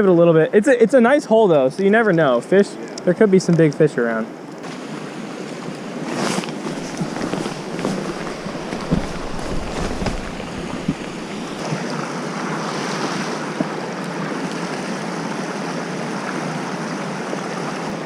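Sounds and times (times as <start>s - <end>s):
river water rushing: 4.3s - 18.0s
wind rumble on microphone: 6.0s - 12.1s.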